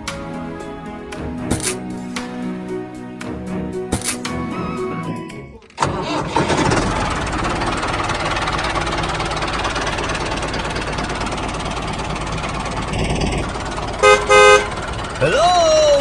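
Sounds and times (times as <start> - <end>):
engine knocking steadily: 6.4 - 16.0.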